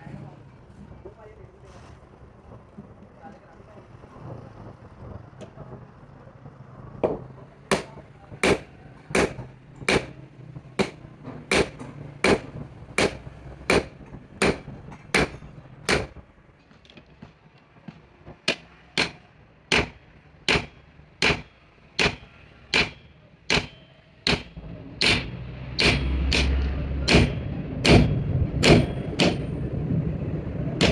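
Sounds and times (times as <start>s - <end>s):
hand hammer blows: 18.5s - 29.5s.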